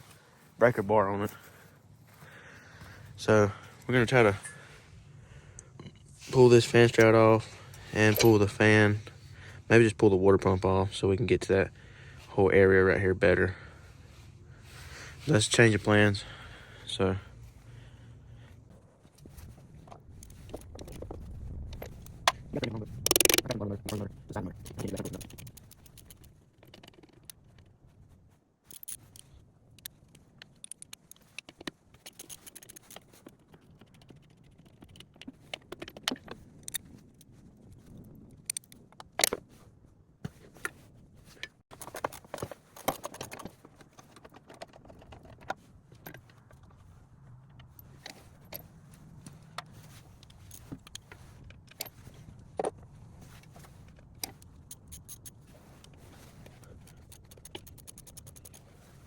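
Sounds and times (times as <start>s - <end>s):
hand tools clinking on metal: 6.0s - 9.0s, 53.4s - 58.7s.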